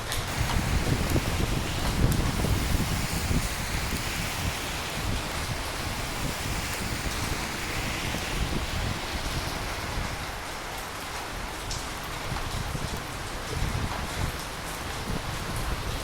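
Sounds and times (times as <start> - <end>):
rain hissing: 0.0 - 16.0
gusty low rumble: 0.3 - 13.0.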